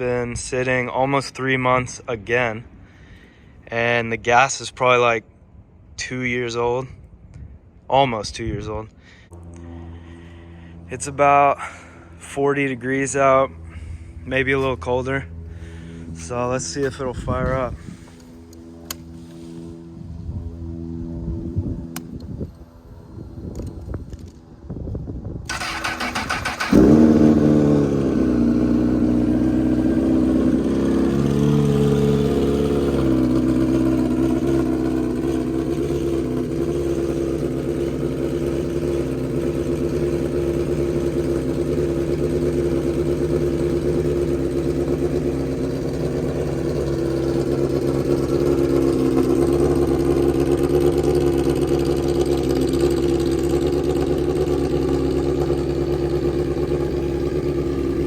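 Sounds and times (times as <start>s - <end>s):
starter motor cranking: 25.5s - 27.4s
motorcycle engine idling: 25.5s - 58.0s.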